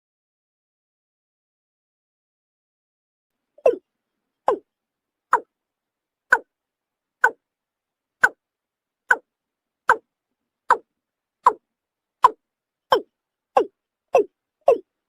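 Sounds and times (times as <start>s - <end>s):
bird calling hollow notes: 3.6s - 3.8s, 4.5s - 4.7s, 10.7s - 11.6s, 12.2s - 14.9s.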